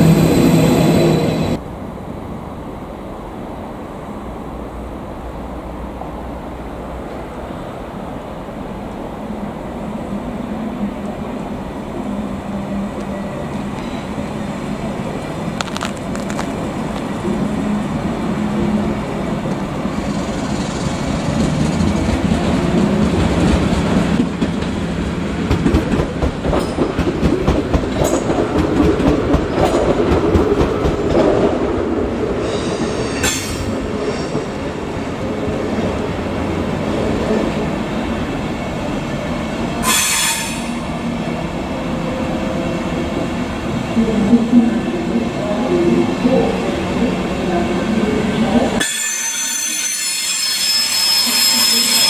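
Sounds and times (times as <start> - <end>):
train wheels clacking over rail joints: 25.4 - 31.5
high wheel squeals: 48.8 - 52.0.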